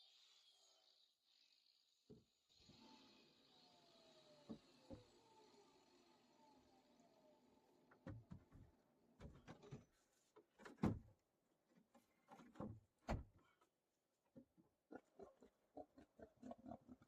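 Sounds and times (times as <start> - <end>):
soft knocks and thuds: 12.3 - 13.4.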